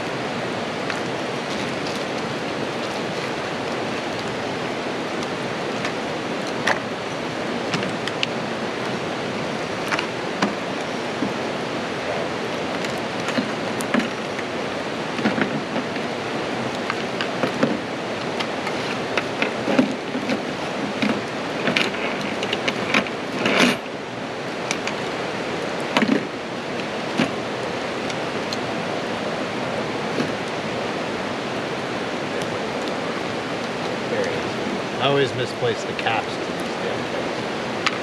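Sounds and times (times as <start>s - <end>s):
rain falling steadily: 0.0s - 38.0s.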